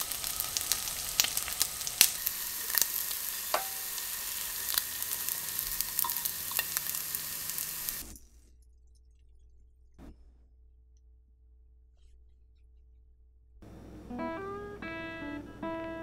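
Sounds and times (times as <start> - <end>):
rice balls sizzling in a frying pan: 0.0 - 8.1
sharp crackles of frying: 0.0 - 8.2.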